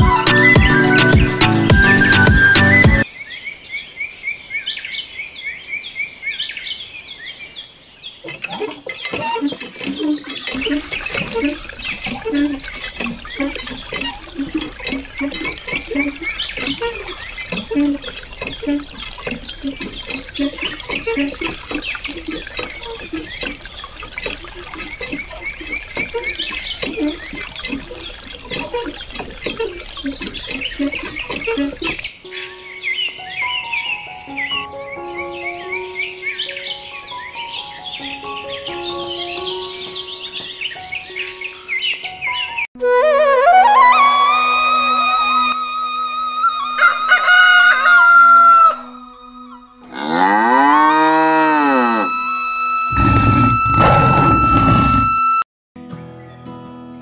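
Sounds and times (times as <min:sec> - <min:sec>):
water splashing into pool: 0:08.3 - 0:32.1.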